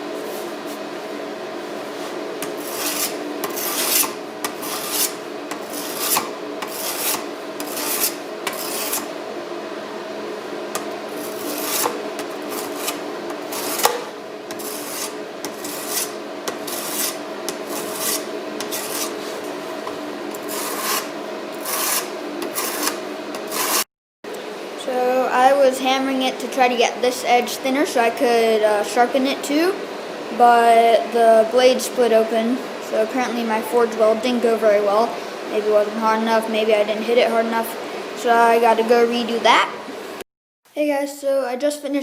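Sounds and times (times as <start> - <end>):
steady hum: 0.0 - 40.2
abrasive scraping knife blade: 2.4 - 9.1, 10.8 - 19.4, 20.3 - 23.8.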